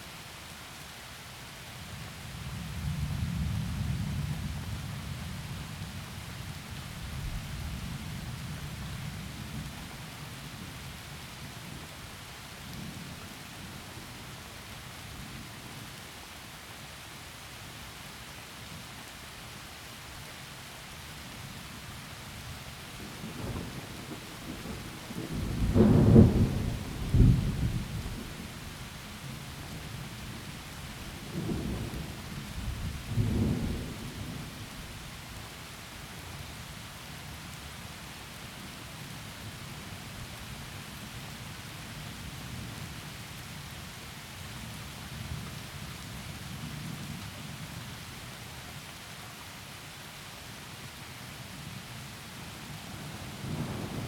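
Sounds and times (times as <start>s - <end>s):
heavy rain through trees: 0.0s - 54.0s
rolling thunder rumble: 22.9s - 35.1s
loud thunder cracks: 23.2s - 28.4s.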